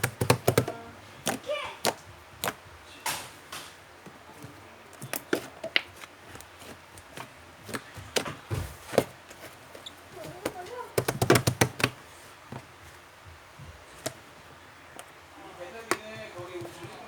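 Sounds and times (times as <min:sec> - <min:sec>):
slime squelching: 0:00.0 - 0:03.0, 0:04.0 - 0:12.8.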